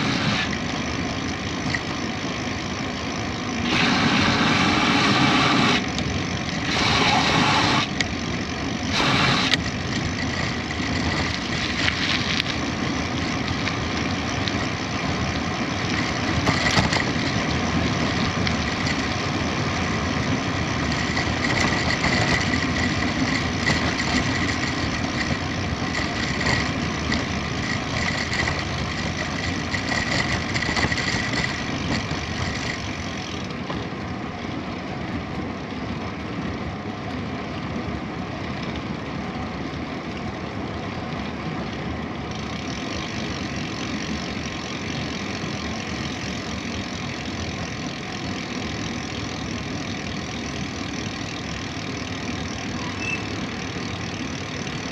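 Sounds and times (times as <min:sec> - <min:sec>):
rolling road noise: 0:00.0 - 0:54.9
thin high tone: 0:48.2 - 0:54.8.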